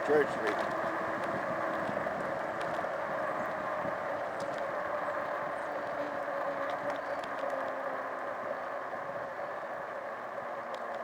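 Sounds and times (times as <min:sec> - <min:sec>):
wind and road noise: 0:00.0 - 0:11.0
faint ticks: 0:04.4 - 0:08.0, 0:10.6 - 0:11.0.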